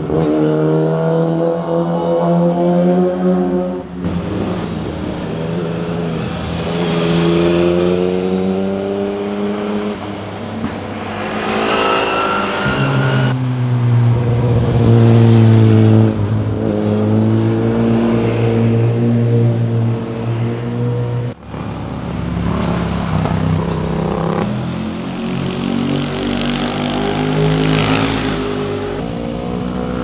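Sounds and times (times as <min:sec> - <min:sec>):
motorcycle engines accelerating: 0:00.0 - 0:30.0.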